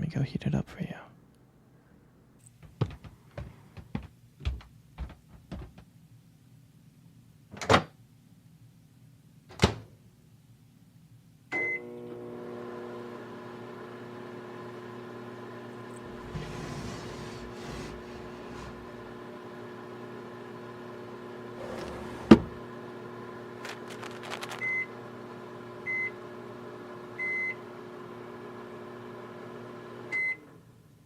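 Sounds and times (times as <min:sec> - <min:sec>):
microwave beep: 0:11.5 - 0:12.0, 0:24.5 - 0:25.0, 0:25.8 - 0:26.2, 0:27.2 - 0:27.7, 0:30.1 - 0:30.5
microwave humming: 0:11.6 - 0:30.7.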